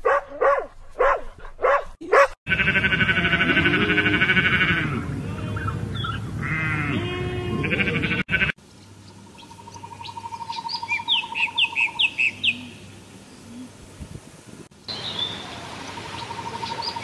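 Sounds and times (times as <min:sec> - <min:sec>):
sheep bleating: 0:02.5 - 0:05.8, 0:06.4 - 0:08.6
bird chirping: 0:08.7 - 0:12.8, 0:14.9 - 0:17.0.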